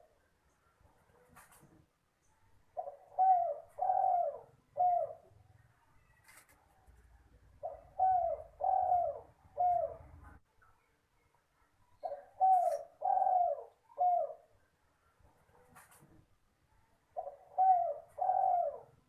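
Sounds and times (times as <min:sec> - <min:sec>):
dove cooing: 0:02.8 - 0:05.4, 0:07.6 - 0:10.4, 0:12.0 - 0:14.6, 0:17.2 - 0:19.0.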